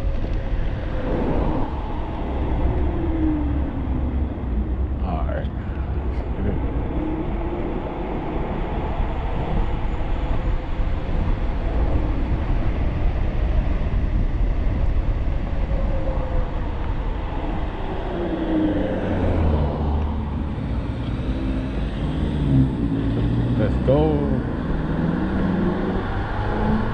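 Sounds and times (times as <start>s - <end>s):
faint whine: 0.0s - 24.5s
wind rushing over microphone: 0.0s - 26.9s.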